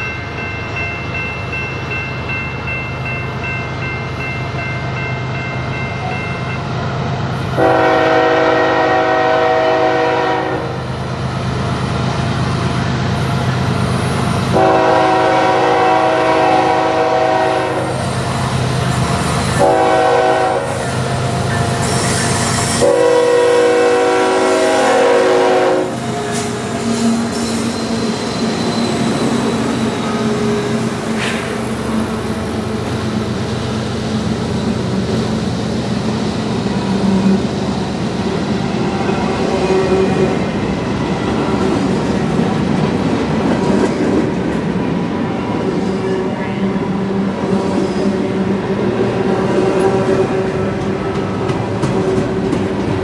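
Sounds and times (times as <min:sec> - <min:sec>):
train wheels rolling on rails: 0:00.0 - 0:53.0
locomotive horn chord: 0:07.6 - 0:10.8, 0:14.5 - 0:18.0, 0:19.6 - 0:20.8, 0:22.8 - 0:26.0.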